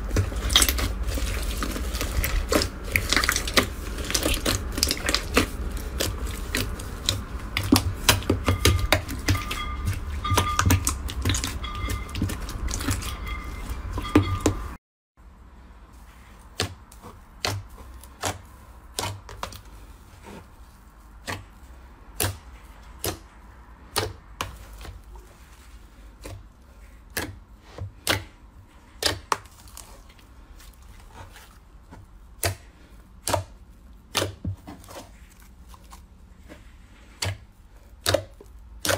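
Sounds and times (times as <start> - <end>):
slime crackling and popping: 0.0 - 9.4.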